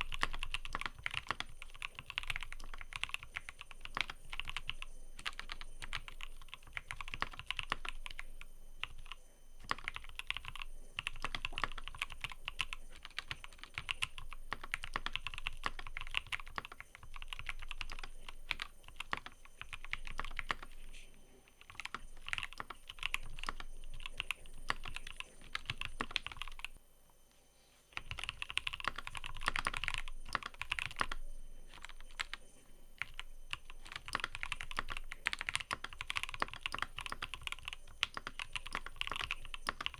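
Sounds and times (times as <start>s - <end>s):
mechanical keyboard typing: 0.0s - 20.8s, 21.6s - 26.8s, 28.0s - 39.9s.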